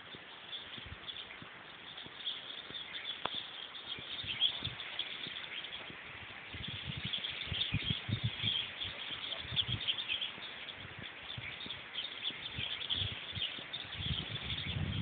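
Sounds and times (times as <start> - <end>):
low rumble on microphone: 0.0 - 15.0
small birds chirping: 0.0 - 15.0.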